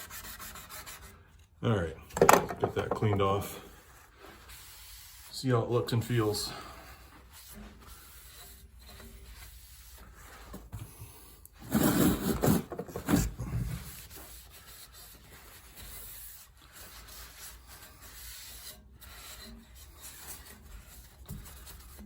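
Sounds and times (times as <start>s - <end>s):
hand rubbing surface: 2.5s - 5.5s, 6.1s - 10.7s.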